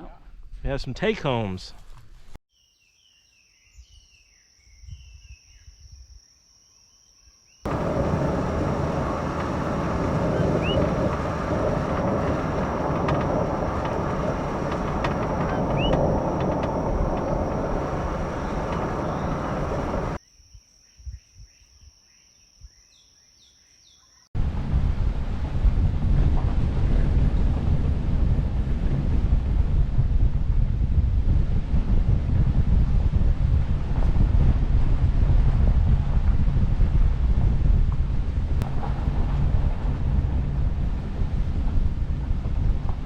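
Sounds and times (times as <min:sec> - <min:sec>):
bird chirps: 0:07.8 - 0:12.8, 0:14.1 - 0:20.2.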